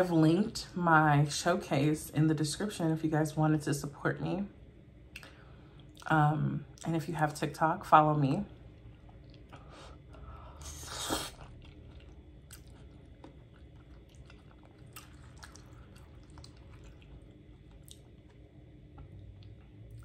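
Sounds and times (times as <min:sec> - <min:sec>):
chewing food: 0:08.5 - 0:20.0.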